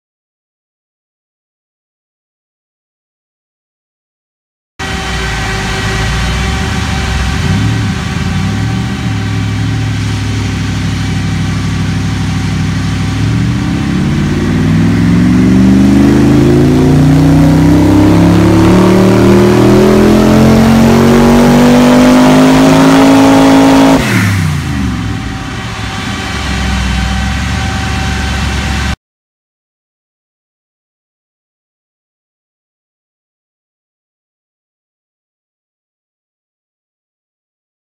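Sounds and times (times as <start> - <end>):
car engine revving on a dyno: 4.8 - 29.0.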